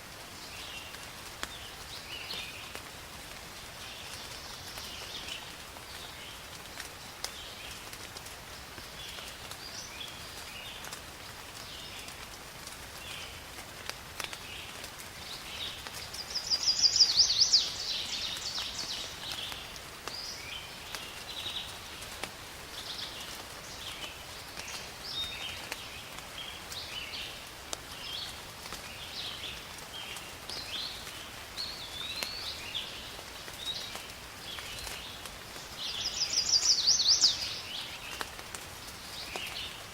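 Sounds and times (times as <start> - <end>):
rain hiss: 0.0 - 39.9
raindrops ticking: 0.5 - 39.9
birds chirping: 15.4 - 21.8, 30.5 - 38.3.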